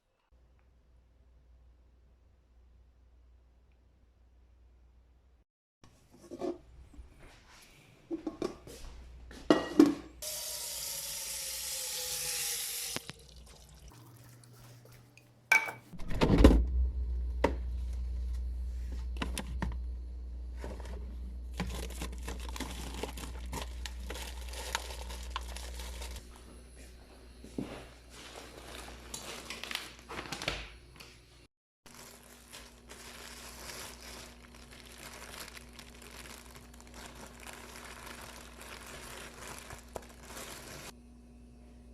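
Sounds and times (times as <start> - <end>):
water running: 10.2 - 15.9
appliance humming: 10.2 - 41.9.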